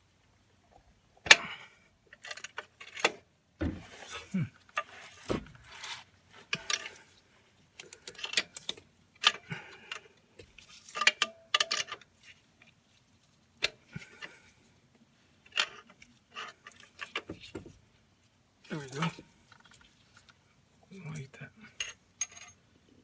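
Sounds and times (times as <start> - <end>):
clatter of tools and engine parts: 1.3 - 7.2, 7.8 - 12.8, 13.6 - 14.7, 15.4 - 17.8, 18.6 - 20.4, 21.2 - 22.7.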